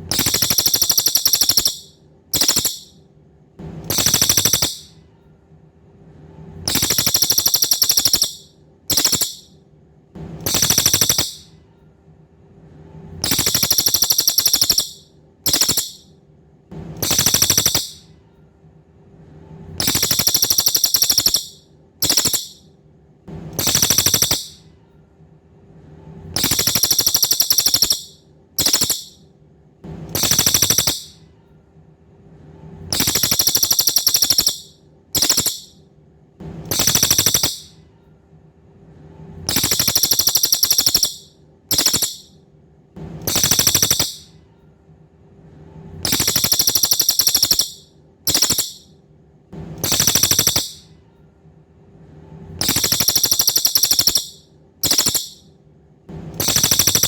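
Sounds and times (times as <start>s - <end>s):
bird rattling trills: 0.0s - 2.9s, 3.9s - 4.9s, 6.7s - 9.5s, 10.4s - 11.5s, 13.2s - 16.1s, 17.0s - 18.0s, 19.8s - 22.6s, 23.6s - 24.6s, 26.4s - 29.2s, 30.1s - 31.2s, 32.9s - 35.8s, 36.7s - 37.7s, 39.5s - 42.3s, 43.2s - 44.3s, 46.0s - 48.9s, 49.8s - 50.8s, 52.6s - 55.4s, 56.4s - 57.0s.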